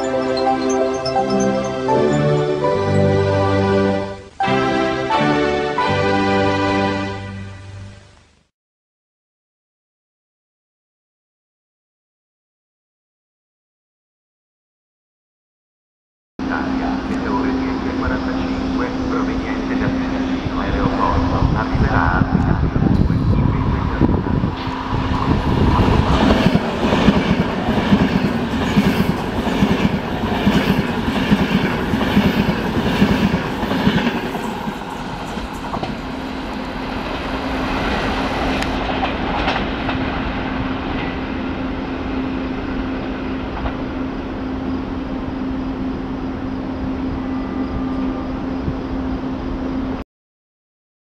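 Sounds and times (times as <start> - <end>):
steady low hum: 16.4 - 28.5.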